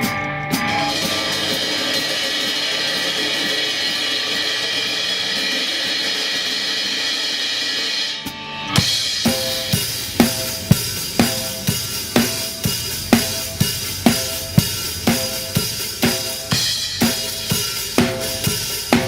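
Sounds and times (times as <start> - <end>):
cymbal wash: 0.0 - 19.0
sharp drum hits: 0.0 - 19.0
backing track chords: 8.1 - 19.0.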